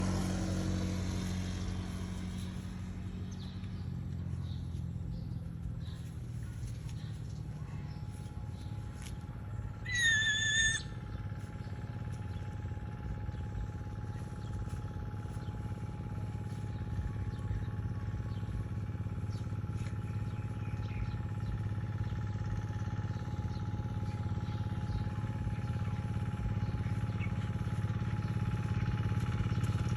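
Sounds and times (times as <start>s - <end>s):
low engine-like hum: 0.0s - 29.9s
high whistle-like call: 9.9s - 10.9s.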